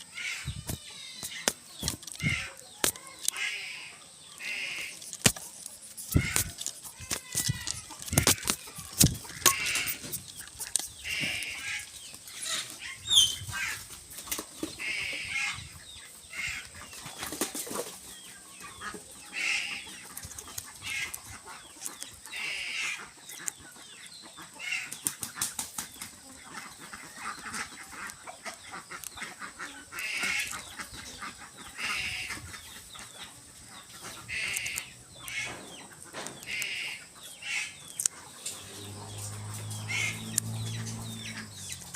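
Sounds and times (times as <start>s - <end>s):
clicks and scuffs tearing prey: 4.5s - 11.8s
eagle calls: 6.0s - 13.8s.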